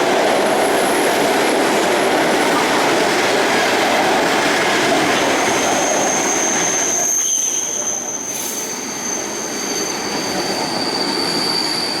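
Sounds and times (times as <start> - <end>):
train rolling past: 0.0 - 12.0
high wheel squeal: 5.1 - 12.0.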